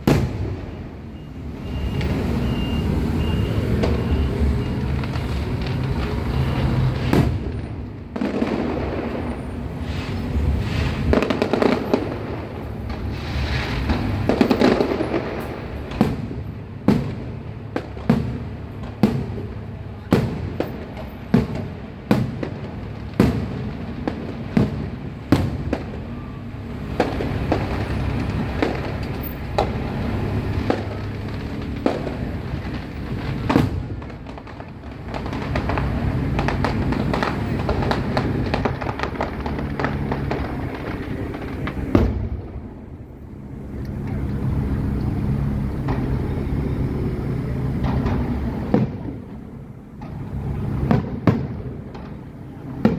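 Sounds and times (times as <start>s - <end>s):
fireworks crackling rumble: 0.0s - 52.9s
fireworks sharp bangs: 0.0s - 52.9s.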